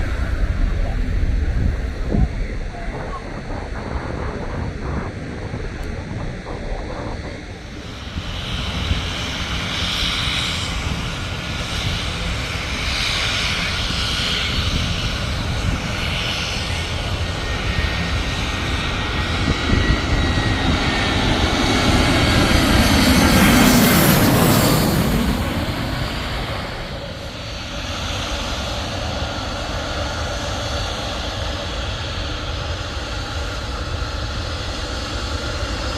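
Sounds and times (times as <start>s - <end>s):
airliner engine noise with whine: 0.0s - 35.9s.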